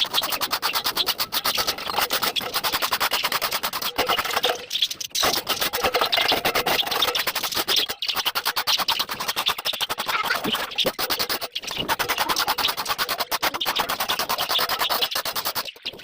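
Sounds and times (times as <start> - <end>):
scraper scraping droppings: 0.0 - 16.0.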